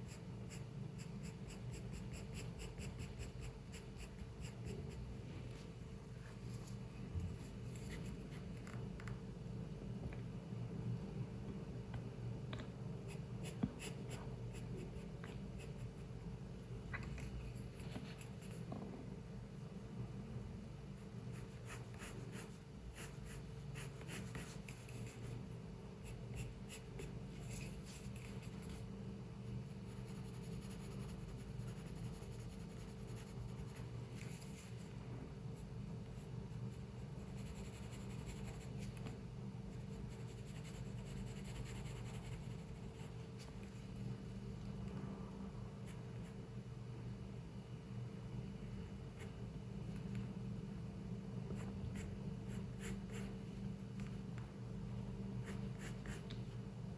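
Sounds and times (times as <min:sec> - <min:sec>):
pencil scratching on paper: 0:00.0 - 0:05.1, 0:21.0 - 0:28.9, 0:29.6 - 0:34.9, 0:35.6 - 0:39.1, 0:39.7 - 0:44.1, 0:51.5 - 0:53.4
low room hum: 0:00.0 - 0:56.9.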